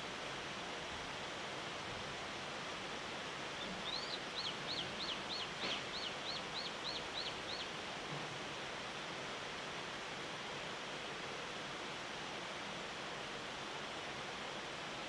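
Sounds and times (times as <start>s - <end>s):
outdoor background hiss: 0.0s - 15.0s
songbird whistling notes: 3.6s - 7.7s.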